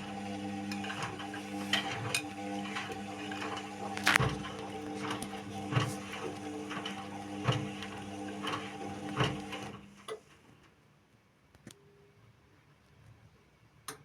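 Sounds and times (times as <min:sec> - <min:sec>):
washing machine motor humming: 0:00.0 - 0:10.0.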